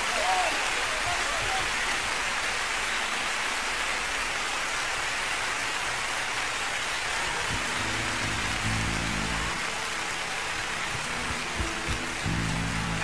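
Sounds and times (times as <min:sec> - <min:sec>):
steady falling rain: 0:00.0 - 0:13.0
low pitched tone: 0:07.5 - 0:09.7.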